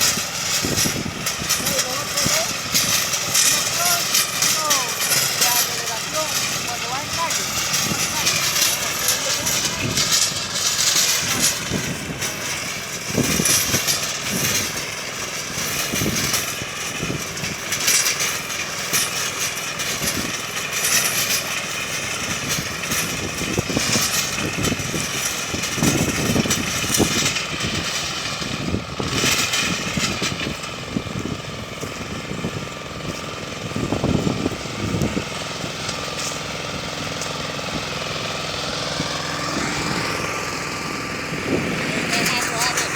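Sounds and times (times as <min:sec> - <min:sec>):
rototiller knocks and rattles: 0:00.0 - 0:42.9
tractor engine running: 0:00.0 - 0:42.9.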